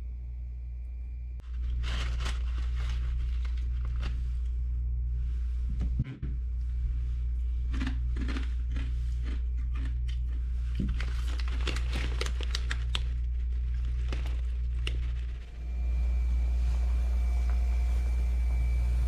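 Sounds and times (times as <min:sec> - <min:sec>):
steady low hum: 0:00.0 - 0:19.0
food packaging crinkling: 0:01.5 - 0:04.3, 0:10.9 - 0:15.4.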